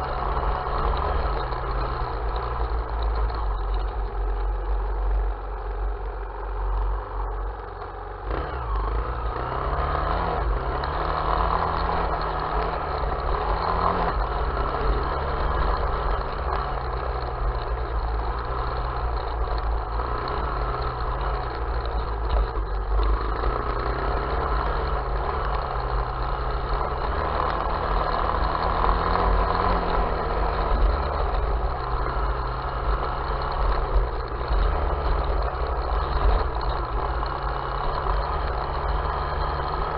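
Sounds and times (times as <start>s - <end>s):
small vehicle engine revving: 0.0s - 5.7s, 6.4s - 39.9s.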